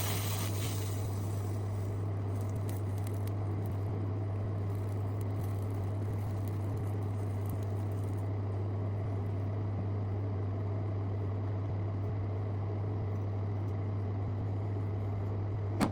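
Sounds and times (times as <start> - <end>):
faint hiss: 0.0 - 2.1
low electrical hum: 0.0 - 15.9.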